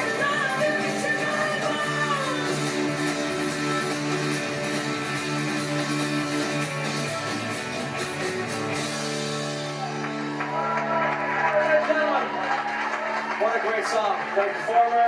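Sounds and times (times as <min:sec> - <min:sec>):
strummed guitar: 0:00.0 - 0:10.6
live band playing: 0:00.0 - 0:11.2.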